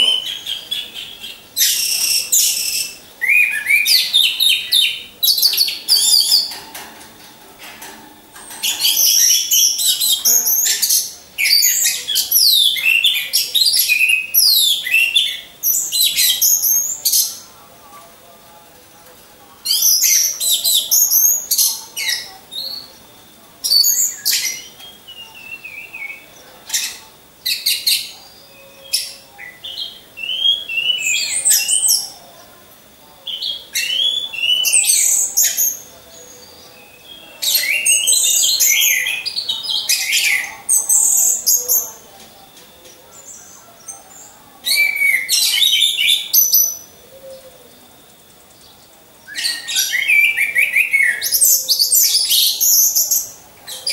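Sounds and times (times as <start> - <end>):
thrushes singing whistled notes: 0.0 - 6.6, 19.6 - 32.2, 33.2 - 53.9.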